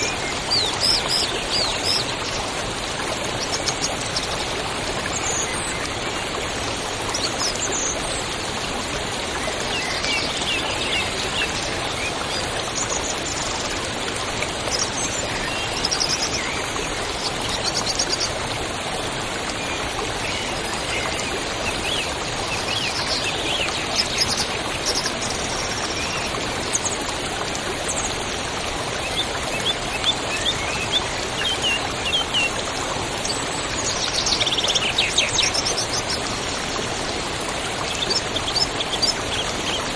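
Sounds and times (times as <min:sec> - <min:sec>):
small birds calling and trilling: 0:00.0 - 0:08.4, 0:14.6 - 0:18.4, 0:19.5 - 0:27.1, 0:29.0 - 0:39.9
river flowing: 0:00.0 - 0:39.9.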